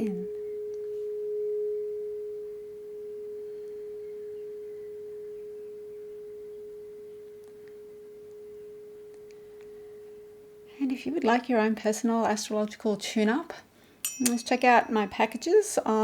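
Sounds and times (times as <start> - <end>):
tuning fork ringing: 0.0 - 10.8, 14.0 - 16.0.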